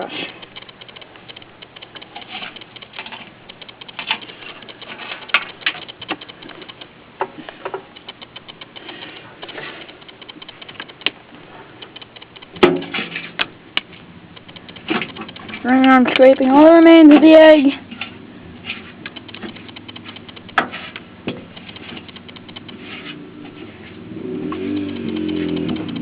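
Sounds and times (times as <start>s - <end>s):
brush scraping and scrubbing: 20.0s - 21.0s, 21.6s - 26.0s.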